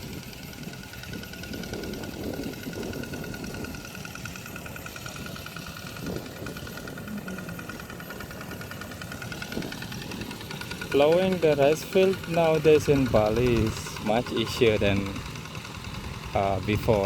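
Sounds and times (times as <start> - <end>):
small tractor engine running: 0.0 - 17.0.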